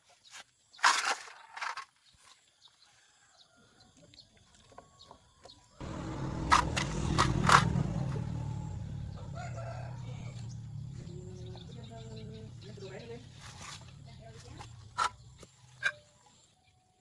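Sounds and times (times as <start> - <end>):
engine running low rumble: 5.8 - 15.4.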